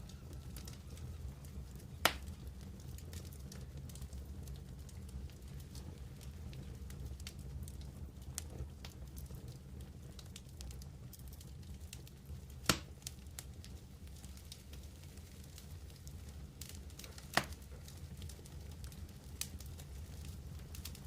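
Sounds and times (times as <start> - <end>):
campfire crackling: 0.0 - 21.0
sharp pop of fire: 2.0 - 2.3, 12.6 - 13.0.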